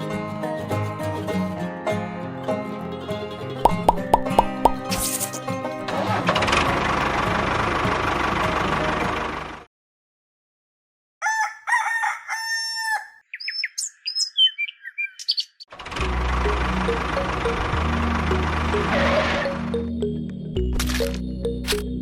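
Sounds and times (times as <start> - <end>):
rooster crowing: 11.2 - 13.2
chicken chirps and clucks: 11.2 - 15.6.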